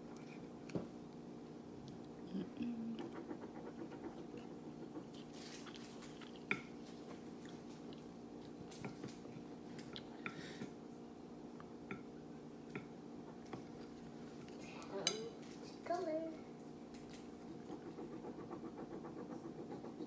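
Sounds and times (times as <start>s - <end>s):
steady low hum: 0.0s - 20.0s
chewing mouth clicks and smacks: 7.4s - 10.1s.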